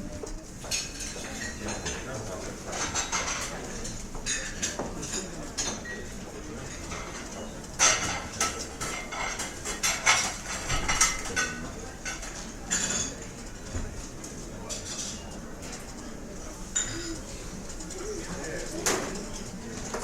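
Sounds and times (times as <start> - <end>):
cutlery and dishes clinking: 0.6 - 13.4.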